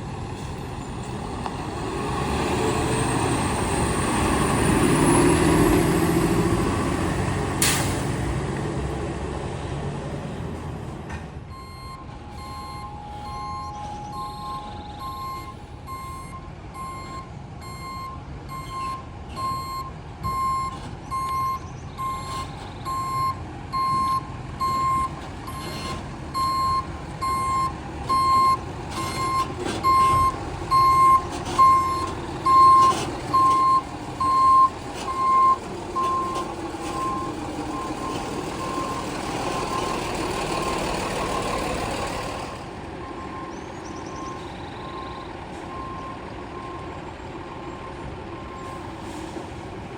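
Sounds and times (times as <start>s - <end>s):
diesel engine running: 0.0s - 49.9s
reversing alarm beeping: 11.5s - 40.0s.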